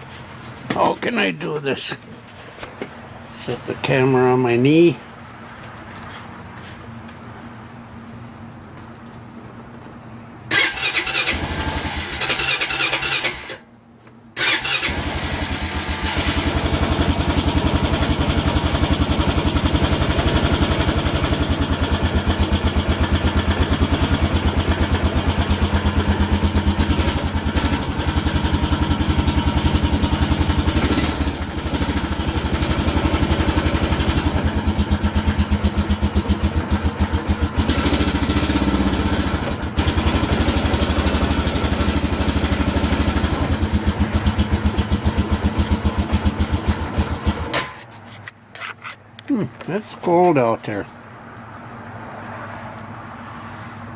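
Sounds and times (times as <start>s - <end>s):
engine running steadily: 0.0s - 52.0s
engine cranking: 10.5s - 13.6s, 14.4s - 18.1s.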